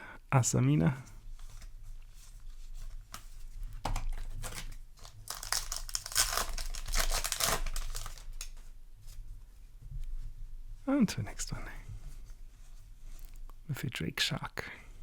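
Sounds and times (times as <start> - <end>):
foil wrapper crinkling and tearing: 4.0 - 8.6.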